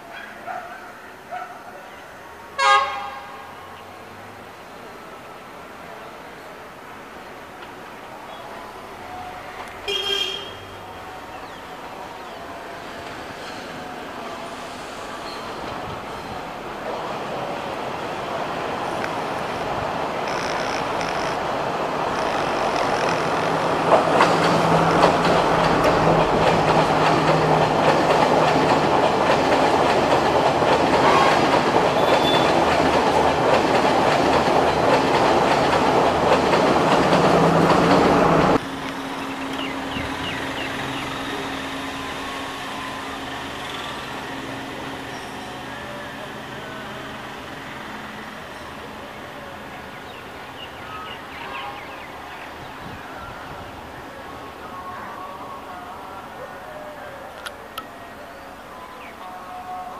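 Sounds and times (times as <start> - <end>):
diesel train engine: 4.1 - 52.6
wheels clacking over rail joints: 18.7 - 39.6.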